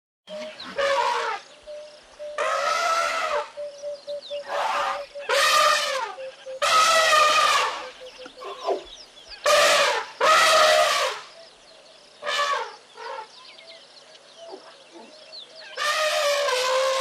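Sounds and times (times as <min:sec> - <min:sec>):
farm animal calling: 0:00.3 - 0:01.7, 0:02.3 - 0:11.1
faint chirping: 0:01.4 - 0:02.7, 0:03.4 - 0:09.5.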